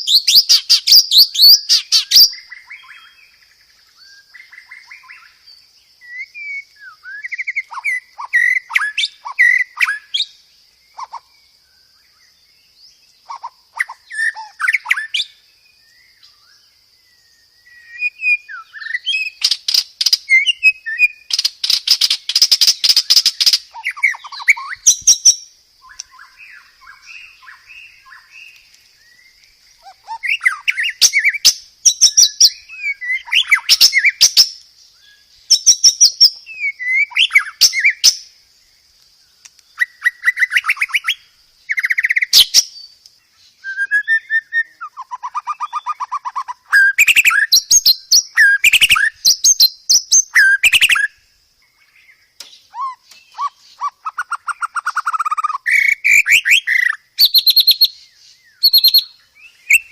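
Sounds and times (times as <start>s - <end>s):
songbird trills and whistles: 0.0s - 38.4s, 39.4s - 59.9s.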